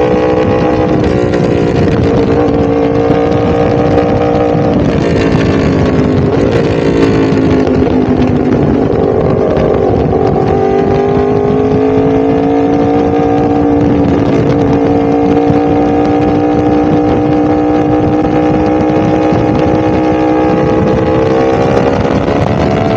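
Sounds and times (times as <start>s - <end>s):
motorcycle engine at high revs: 0.0s - 22.9s.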